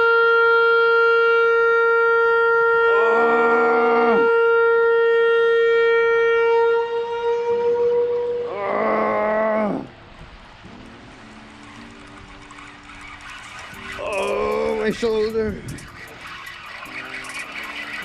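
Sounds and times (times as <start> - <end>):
short low horn blasts: 0.0 - 8.6
warning horn long tone: 0.0 - 8.6.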